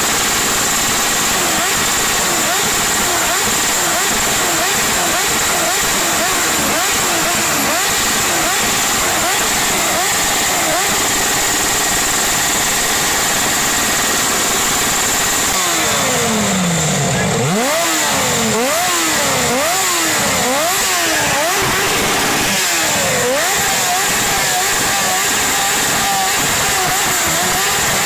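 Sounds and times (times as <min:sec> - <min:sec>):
motorcycle engine revving: 0:00.0 - 0:28.0
loud rushing noise: 0:06.7 - 0:27.9.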